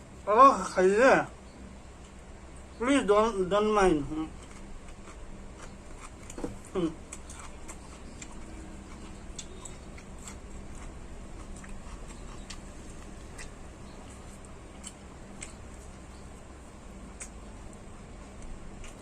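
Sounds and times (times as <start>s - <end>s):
low hum: 0.0s - 19.0s
person chewing: 4.2s - 19.0s.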